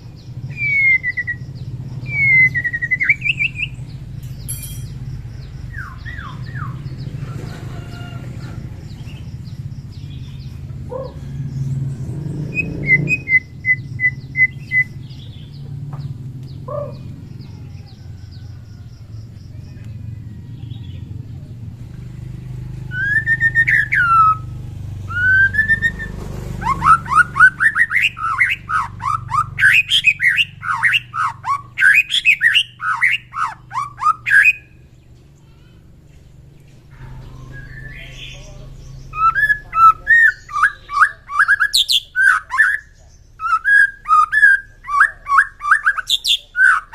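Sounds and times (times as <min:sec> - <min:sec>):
bird whistling and chirping: 0:00.3 - 0:03.8, 0:12.5 - 0:15.4, 0:22.9 - 0:34.8, 0:37.2 - 0:38.4, 0:39.0 - 0:46.9.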